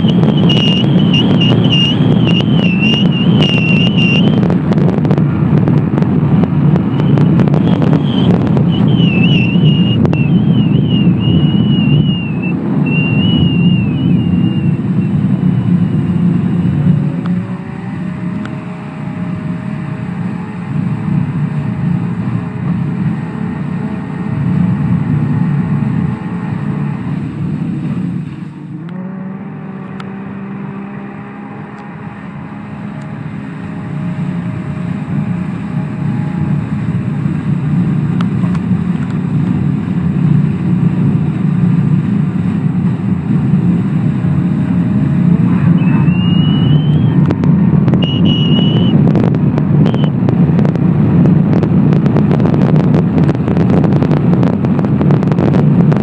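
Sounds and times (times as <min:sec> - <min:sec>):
high whistle: 0:00.0 - 0:04.4, 0:06.9 - 0:15.1, 0:45.6 - 0:47.2, 0:48.0 - 0:49.0, 0:49.9 - 0:50.1
wind buffeting: 0:00.0 - 0:28.3, 0:31.0 - 0:56.0
jet ski engine running hard: 0:00.0 - 0:56.0.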